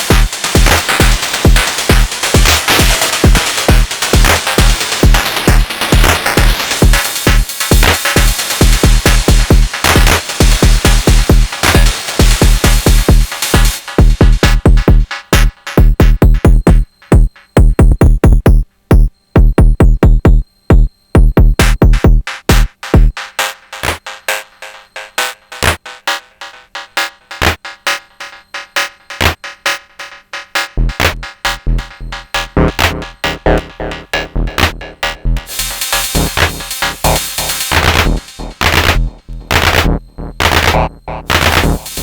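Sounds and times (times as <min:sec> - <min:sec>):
kick drums: 0:00.0 - 0:23.2, 0:30.8 - 0:42.0
clicky percussion hits: 0:30.8 - 0:42.0.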